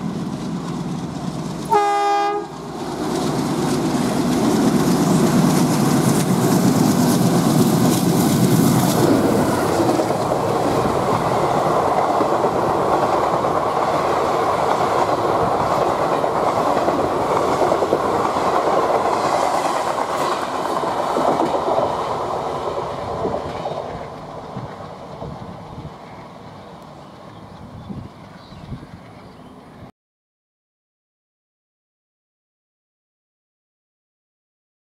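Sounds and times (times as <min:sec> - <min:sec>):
diesel locomotive engine running: 0:00.0 - 0:29.2
wheel-on-rail noise: 0:00.0 - 0:29.8.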